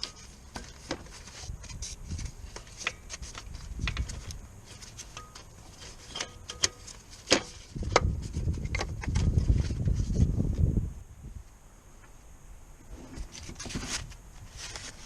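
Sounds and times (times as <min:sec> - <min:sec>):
metal tools clicking and knocking: 0:05.1 - 0:07.5.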